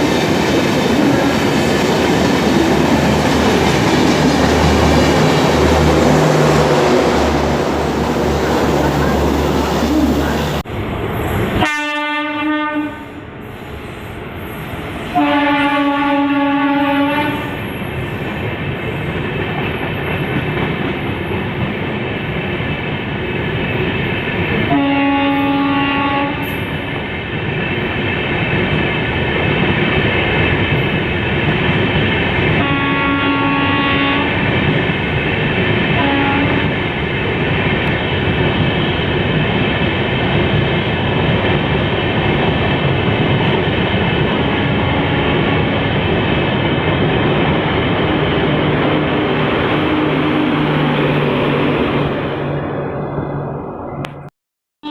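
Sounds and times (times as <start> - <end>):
passing train rumble with wheel clatter: 0.0 - 54.9
two-tone locomotive horn: 11.6 - 13.3, 15.1 - 17.7, 24.7 - 26.6, 32.6 - 34.4, 36.0 - 36.8, 44.4 - 45.5, 49.1 - 51.0.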